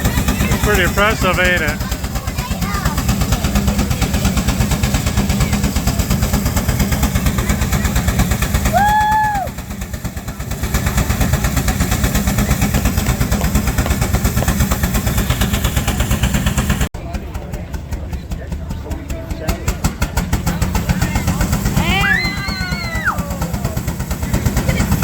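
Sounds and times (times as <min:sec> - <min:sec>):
steam engine exhaust beating: 0:00.0 - 0:25.0.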